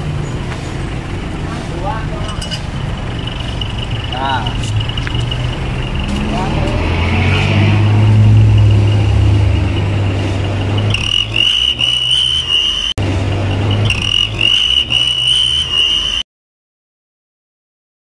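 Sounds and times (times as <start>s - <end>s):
engine hum: 0.0s - 16.2s
exhaust whistle: 3.1s - 16.3s.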